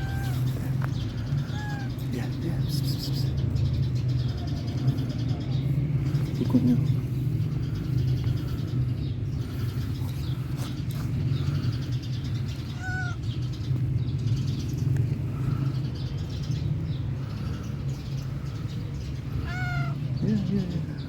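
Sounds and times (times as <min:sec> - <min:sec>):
cat meowing: 0:00.0 - 0:02.1, 0:12.6 - 0:13.2, 0:19.4 - 0:20.1
faint calls: 0:00.0 - 0:03.5, 0:11.3 - 0:13.7, 0:17.1 - 0:21.0
steady low rumble: 0:00.0 - 0:21.0.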